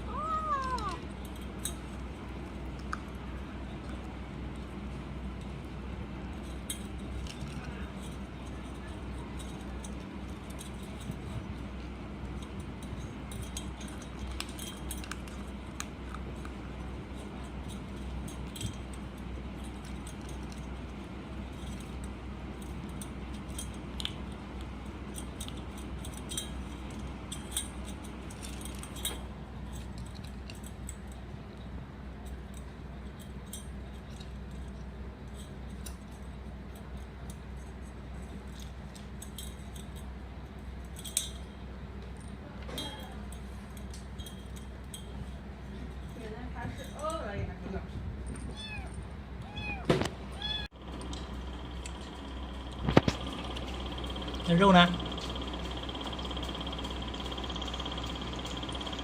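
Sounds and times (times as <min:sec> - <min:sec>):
kitten crunching dry food: 0:00.0 - 0:46.2, 0:47.9 - 0:59.0.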